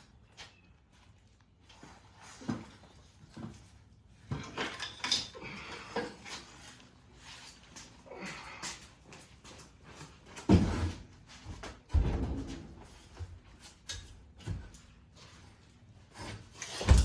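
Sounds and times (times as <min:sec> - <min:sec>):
metal clunks and knocks: 0:11.9 - 0:13.2.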